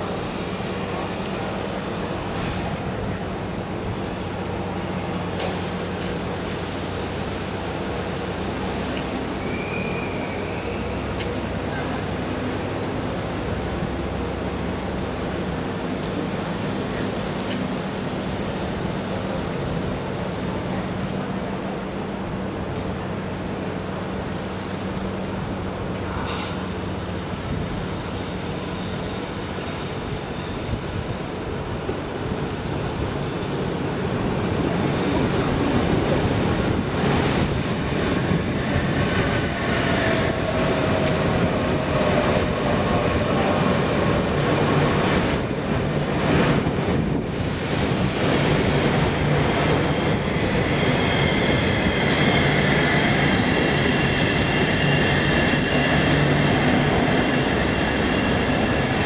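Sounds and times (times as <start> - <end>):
train rumble: 0.0 - 59.0
train wheels squealing: 9.2 - 11.2, 24.9 - 44.3, 49.8 - 59.0.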